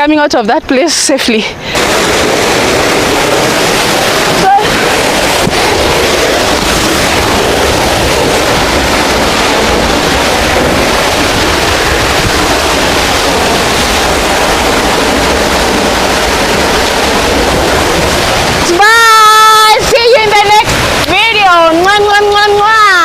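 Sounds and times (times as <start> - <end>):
waterfall roaring: 0.7 - 23.0.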